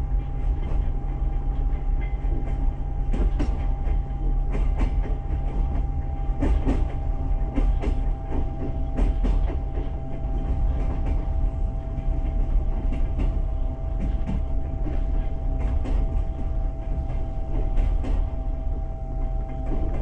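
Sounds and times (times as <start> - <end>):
thin steady whine: 0.0 - 20.0
train wheels rumbling on rails: 0.0 - 20.0.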